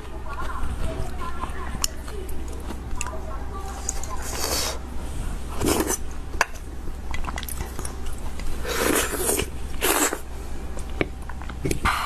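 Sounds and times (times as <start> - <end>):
person biting and chewing: 7.1 - 12.0.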